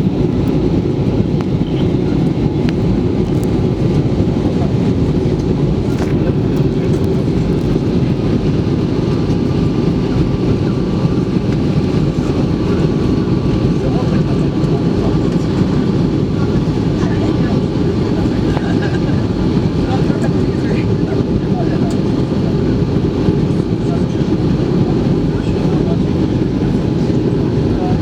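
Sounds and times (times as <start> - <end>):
airplane cabin rumble: 0.0 - 28.0.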